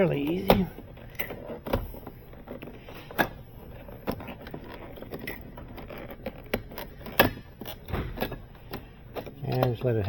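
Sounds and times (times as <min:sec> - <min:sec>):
plastic trim scraping: 0:00.0 - 0:10.0.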